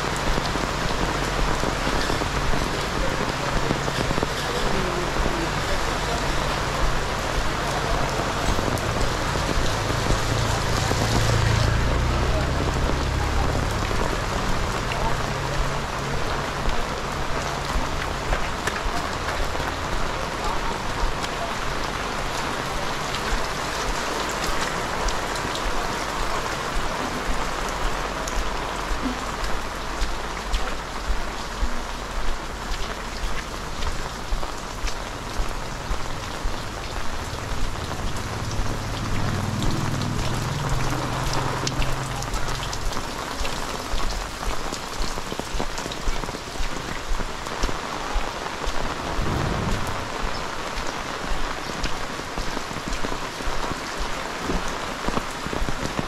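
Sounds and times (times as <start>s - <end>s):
footsteps on wet ground: 0.0s - 56.0s
heavy rain: 0.0s - 56.0s
low rumble: 48.9s - 50.8s.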